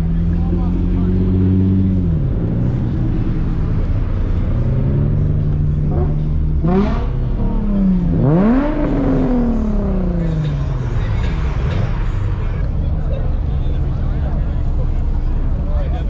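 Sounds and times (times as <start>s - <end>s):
car engine revving: 0.0s - 12.7s.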